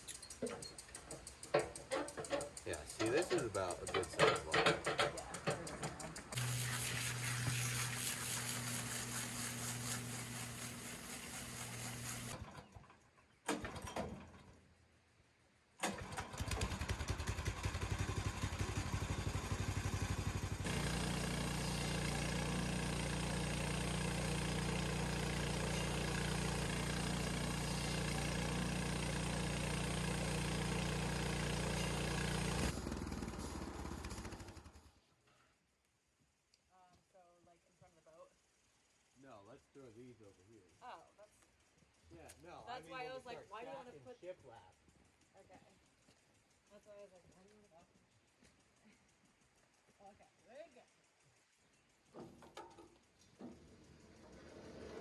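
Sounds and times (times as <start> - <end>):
small gasoline engine running: 1.3 - 12.8, 15.8 - 35.1, 53.5 - 55.0.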